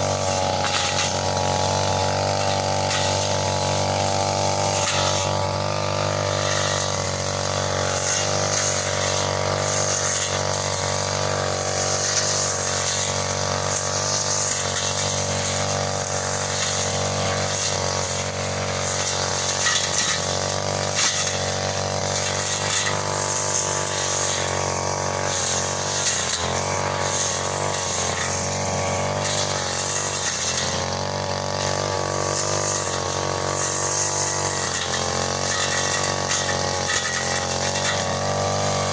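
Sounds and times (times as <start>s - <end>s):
brush cutter engine cutting grass: 0.0s - 38.9s.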